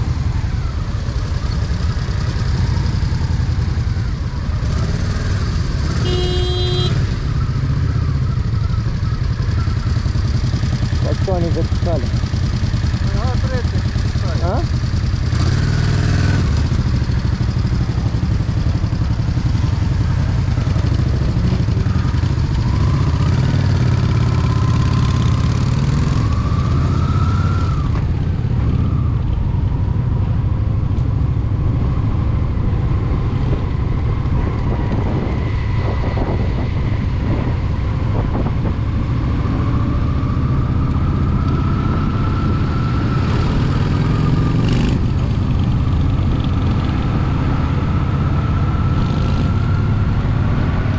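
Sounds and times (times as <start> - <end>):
motorcycle engine running: 0.0 - 50.9
wind rushing over microphone: 26.2 - 50.9.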